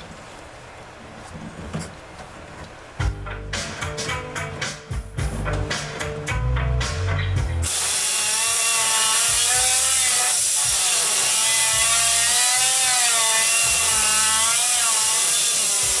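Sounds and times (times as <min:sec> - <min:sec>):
power tool grinding metal: 0:07.6 - 0:16.0.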